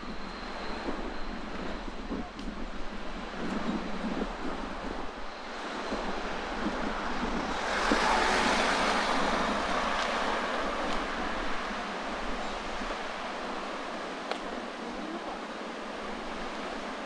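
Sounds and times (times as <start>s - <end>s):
wind buffeting microphone: 0.0s - 17.0s
sea waves washing ashore: 4.1s - 17.0s.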